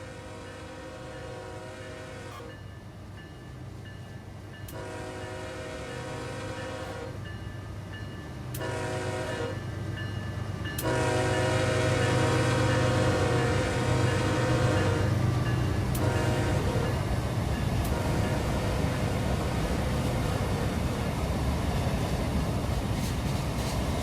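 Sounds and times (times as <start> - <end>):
locomotive air horn: 0.0 - 2.6, 4.7 - 7.2, 8.5 - 9.6, 10.8 - 15.2, 15.9 - 17.0, 17.8 - 18.9
train engine and rail rumble: 0.0 - 24.0.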